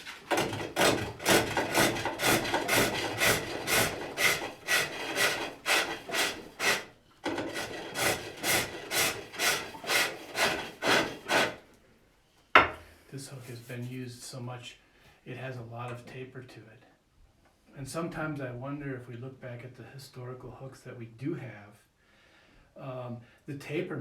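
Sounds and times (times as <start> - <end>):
hook tool rasping wood on lathe: 0.0 - 11.6.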